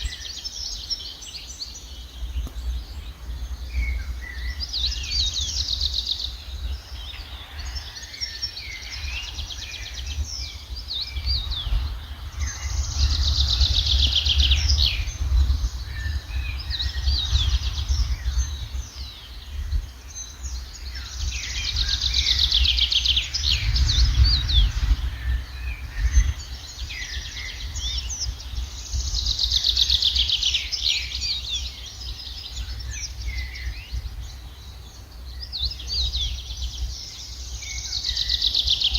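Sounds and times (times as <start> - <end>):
songbirds chirping and singing: 0.0 - 38.9
low rumble: 10.2 - 19.8, 22.2 - 28.2.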